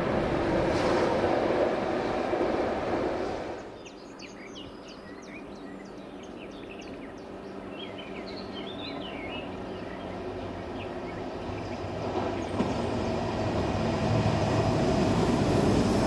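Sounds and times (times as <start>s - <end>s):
small birds chirping: 3.6s - 13.1s.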